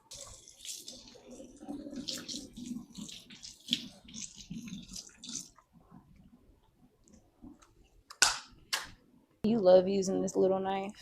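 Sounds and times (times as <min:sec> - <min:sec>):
water running and splashing: 0:00.0 - 0:05.7.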